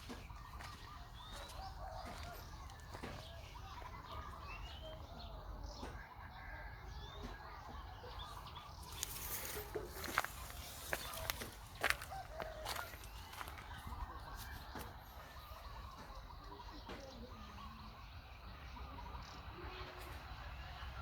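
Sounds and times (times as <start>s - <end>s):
high chirping animal calls: 0.0s - 20.0s
rustling and crackling: 8.8s - 13.9s.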